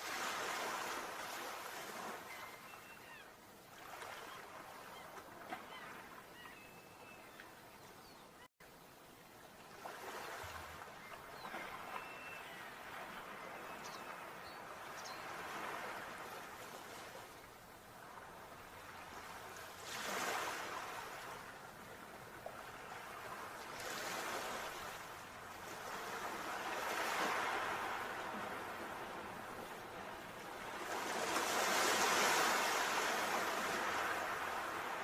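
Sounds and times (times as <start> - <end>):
sea waves washing in: 0.0 - 2.3, 18.4 - 35.0.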